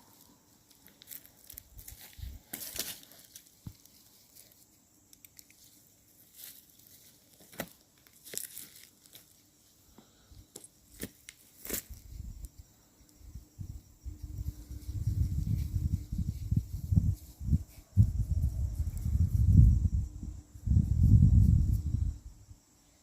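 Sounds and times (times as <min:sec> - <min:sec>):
footsteps crunching dry leaves: 0:00.1 - 0:04.6, 0:06.2 - 0:09.4.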